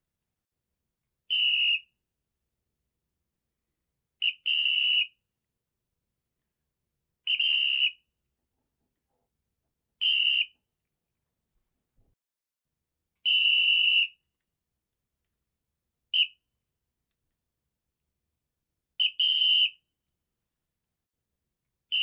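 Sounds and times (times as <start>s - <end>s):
high-pitched whistle-like squeak: 7.3s - 8.1s, 10.0s - 10.6s.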